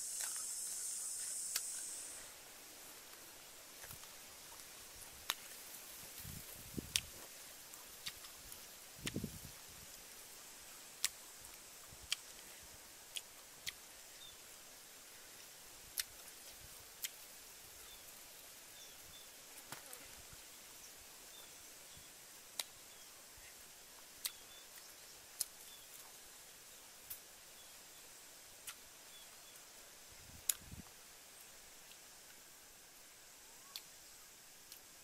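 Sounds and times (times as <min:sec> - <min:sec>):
faint high chirps: 0:00.0 - 0:02.3
faint outdoor hiss: 0:00.0 - 0:35.0
person chewing and smacking: 0:08.0 - 0:08.3.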